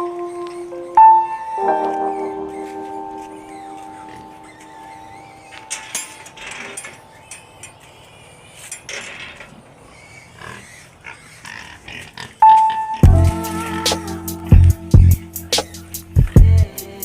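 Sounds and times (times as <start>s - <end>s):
pigs grunting and snuffling: 2.5s - 13.1s.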